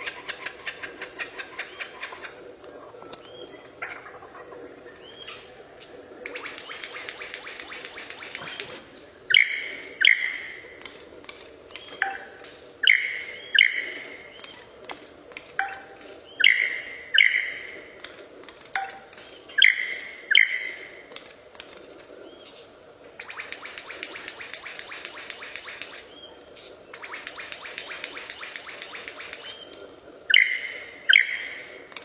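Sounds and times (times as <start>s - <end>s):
bird giving sharp ringing calls: 12.0s - 14.0s, 15.6s - 17.8s, 30.3s - 31.7s.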